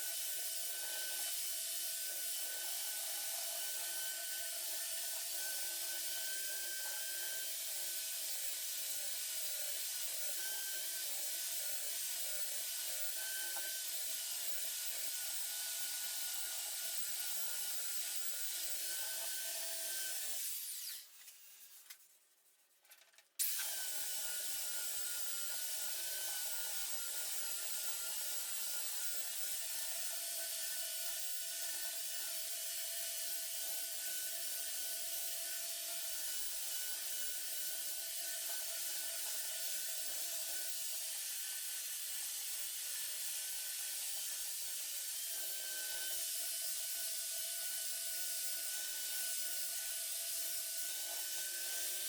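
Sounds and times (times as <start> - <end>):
power sander on wood: 0.0 - 21.0, 23.5 - 52.0.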